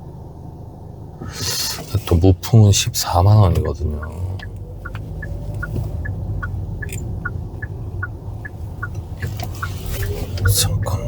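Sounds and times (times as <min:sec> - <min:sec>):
car cabin rumble: 0:00.0 - 0:11.0
car turn signal ticking: 0:02.8 - 0:11.0.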